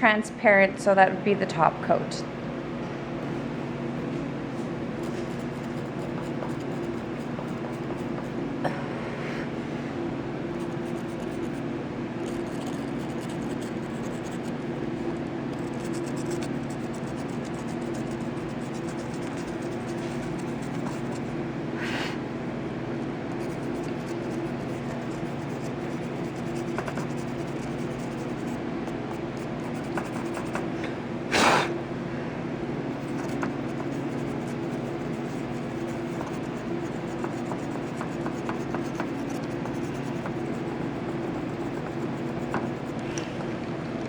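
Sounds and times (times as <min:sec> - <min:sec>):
steady low hum: 0:00.0 - 0:44.0
sanding pen scratching paint: 0:05.0 - 0:08.4, 0:10.6 - 0:11.6, 0:12.2 - 0:14.6, 0:15.5 - 0:21.3, 0:23.3 - 0:30.7, 0:33.0 - 0:43.0.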